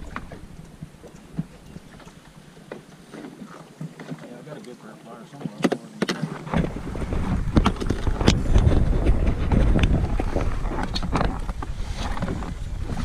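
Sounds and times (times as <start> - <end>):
wind buffeting microphone: 0.0 - 2.3, 6.3 - 13.0.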